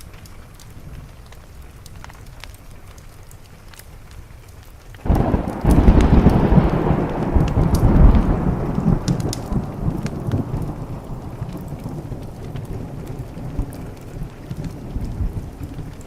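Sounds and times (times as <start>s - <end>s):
steady rain: 0.0s - 16.0s
wood fire crackling: 0.0s - 16.0s
thunderclap and rumble: 5.0s - 16.0s.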